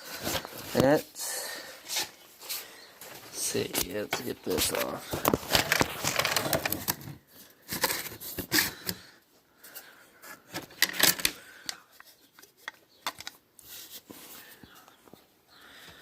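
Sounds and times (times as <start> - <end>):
rummaging clicks knocks and rattles: 10.6 - 11.4.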